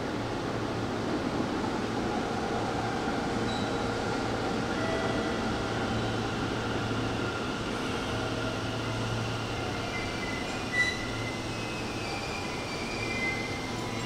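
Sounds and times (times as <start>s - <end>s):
electric train rumbling hum: 0.0s - 14.0s
short sharp squeal: 10.2s - 14.0s.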